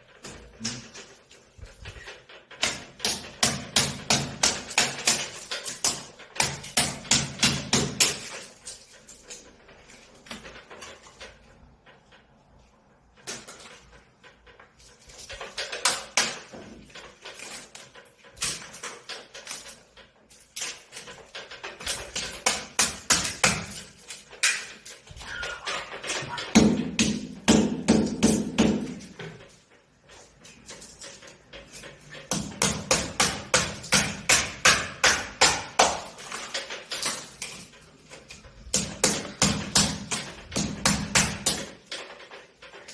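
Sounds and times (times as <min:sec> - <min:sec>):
hammer striking: 0:26.4 - 0:29.1.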